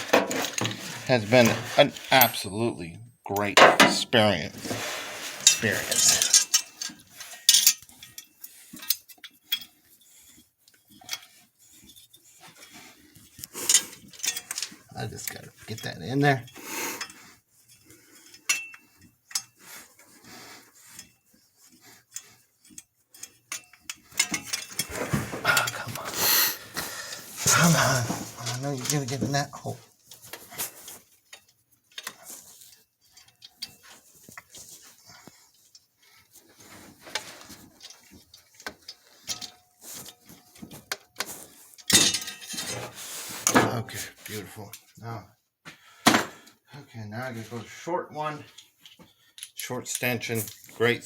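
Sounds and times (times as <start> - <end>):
faint scraping and rubbing: 0.0 - 2.6, 4.2 - 31.5
metal tools clicking on engine: 10.7 - 19.6, 22.0 - 24.9.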